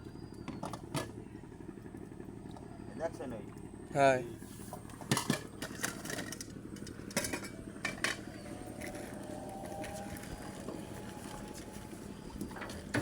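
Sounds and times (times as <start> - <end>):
low engine-like hum: 0.0 - 13.0.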